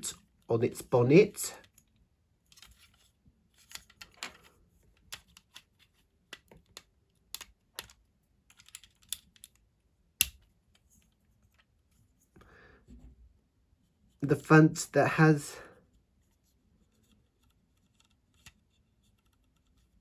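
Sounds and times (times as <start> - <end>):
plastic bricks clicking together: 6.3 - 10.5.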